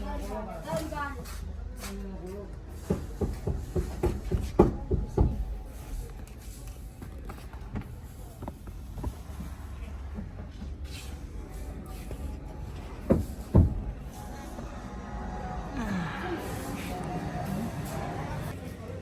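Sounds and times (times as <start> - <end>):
knocks on car bodywork: 2.9 - 5.5, 13.1 - 14.0.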